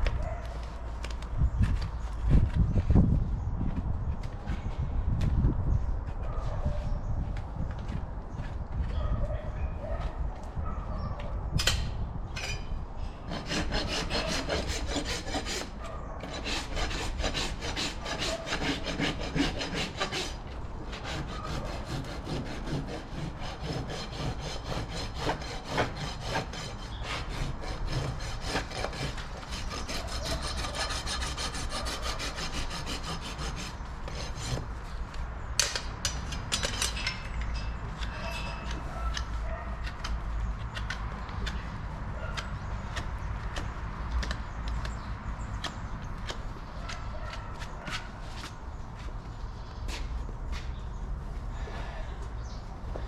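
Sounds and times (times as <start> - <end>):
rasp filing a hoof: 13.2 - 35.0.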